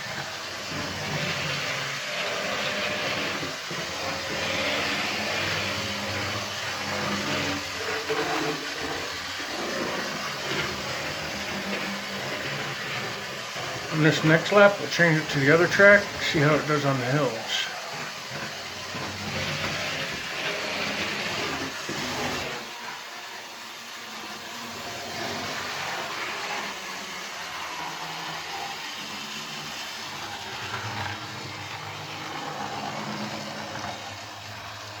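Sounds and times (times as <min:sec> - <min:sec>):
wheels rattling over rails: 0:00.0 - 0:16.5, 0:24.2 - 0:35.0
model train motor humming: 0:00.0 - 0:35.0.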